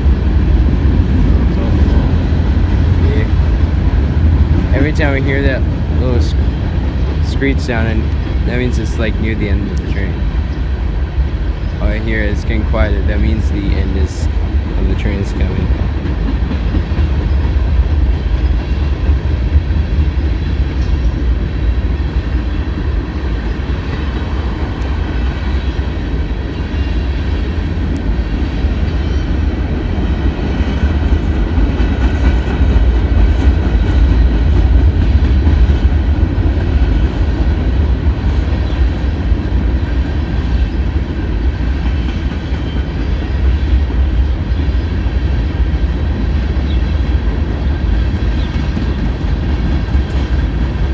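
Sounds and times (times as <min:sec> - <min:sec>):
freight train wheels rumbling on rails: 0:00.0 - 0:50.9.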